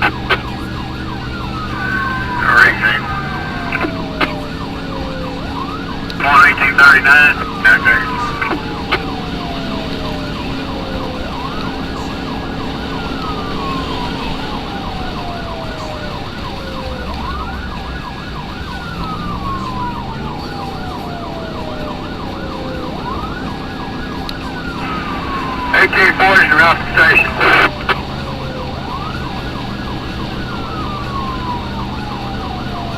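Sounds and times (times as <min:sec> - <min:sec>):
warbling siren tone: 0:00.0 - 0:12.1
emergency siren wailing: 0:00.0 - 0:32.9.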